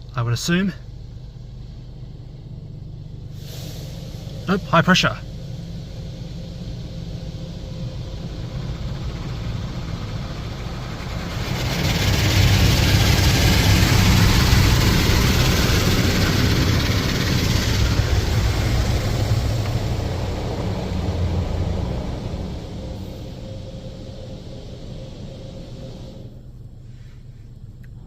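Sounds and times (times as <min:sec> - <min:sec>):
low rumble: 0:00.0 - 0:28.0.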